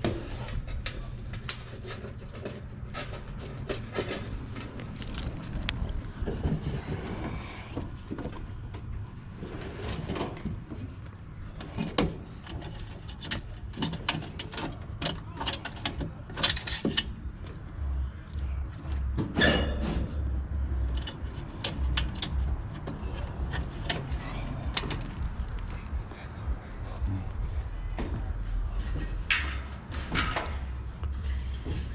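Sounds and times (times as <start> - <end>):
tools clicking and rattling: 1.9 - 6.0, 11.6 - 17.6, 20.8 - 25.8.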